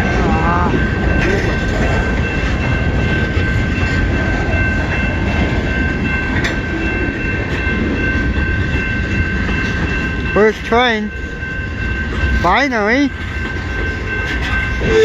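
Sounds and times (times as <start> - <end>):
freight train cars rolling on rails: 0.0 - 15.0.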